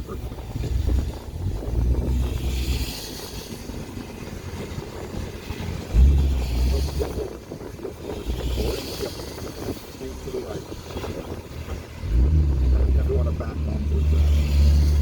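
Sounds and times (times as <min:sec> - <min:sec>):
car engine and road rumble: 0:00.0 - 0:15.0
heavy low rumble: 0:00.0 - 0:15.0
tyre hiss on wet road: 0:02.3 - 0:04.0.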